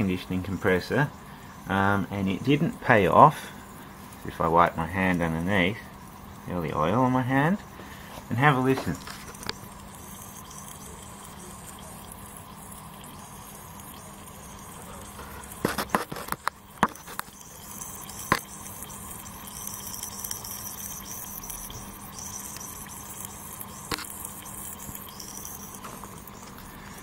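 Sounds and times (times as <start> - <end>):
gas hissing from a leak: 0.0 - 27.0
sharp clicks and knocks: 15.6 - 17.4.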